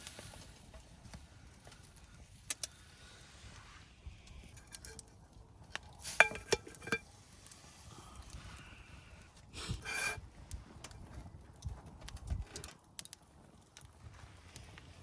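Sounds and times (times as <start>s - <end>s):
cookware clinking: 6.1s - 7.0s
short scrape: 9.6s - 10.2s.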